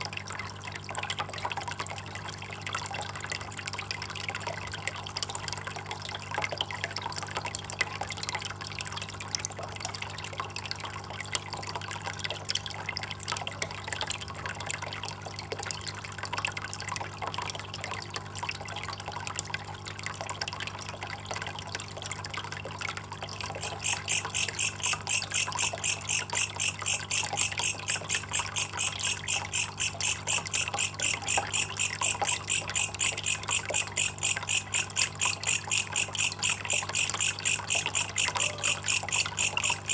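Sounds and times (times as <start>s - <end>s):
water trickling and dripping: 0.0s - 39.9s
rapid pulsing high chirp: 23.5s - 39.9s.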